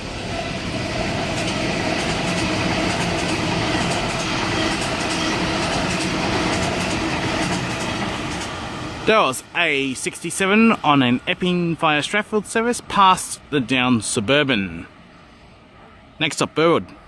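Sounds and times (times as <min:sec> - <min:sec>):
train wheels rumbling on rails: 0:00.0 - 0:10.8
clickety-clack over rail joints: 0:01.1 - 0:08.7.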